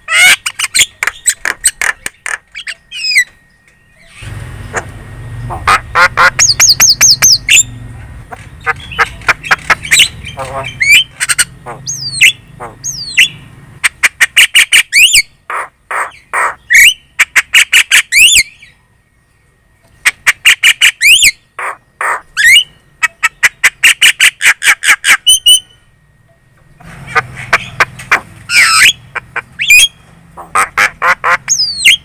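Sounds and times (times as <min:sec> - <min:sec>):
myna chattering: 0:04.7 - 0:13.0.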